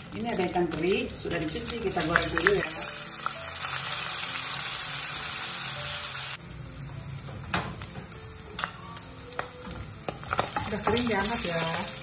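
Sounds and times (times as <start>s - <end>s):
oil popping and crackling: 0.0s - 4.4s, 7.4s - 12.0s
oil sizzling in a wok: 0.0s - 12.0s.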